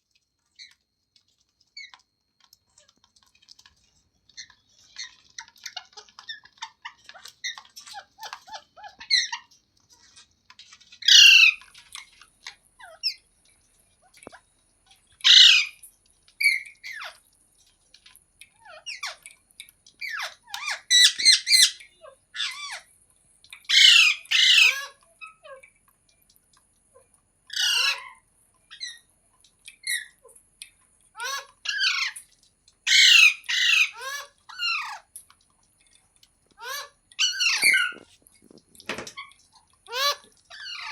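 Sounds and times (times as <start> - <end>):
parrot chirps and chatter: 0.4 - 40.9
parrot screeching: 11.0 - 11.6, 15.2 - 15.8, 20.0 - 22.9, 23.7 - 25.4, 27.5 - 29.0, 31.2 - 32.2, 32.9 - 35.0, 36.6 - 38.1, 39.0 - 40.9.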